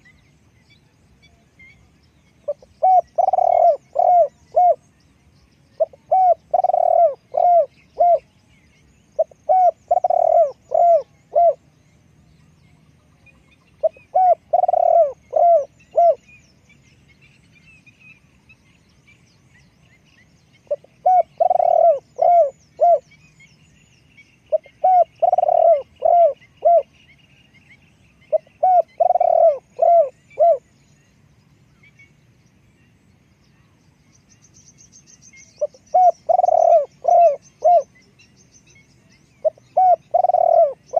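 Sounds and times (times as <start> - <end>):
small birds chirping: 0.0 - 40.9
dove cooing: 2.5 - 4.8, 5.8 - 8.3, 9.2 - 11.6, 13.8 - 16.2, 20.7 - 23.0, 24.5 - 26.9, 28.3 - 30.6, 35.6 - 37.9, 39.4 - 40.9.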